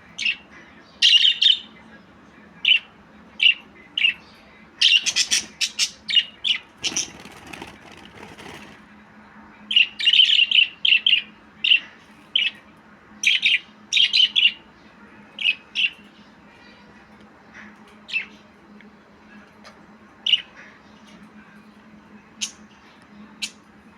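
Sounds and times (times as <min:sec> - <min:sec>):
budgerigar chirping: 0:04.9 - 0:06.0.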